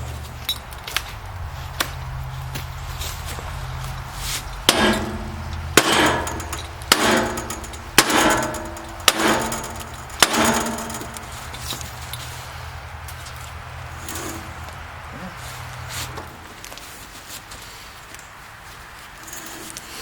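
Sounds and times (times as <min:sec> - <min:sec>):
hammer blows on metal: 0:04.3 - 0:11.7.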